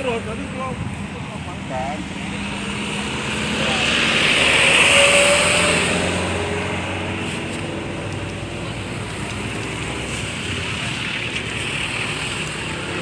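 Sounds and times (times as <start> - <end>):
vehicle passing by: 0.0 - 13.0.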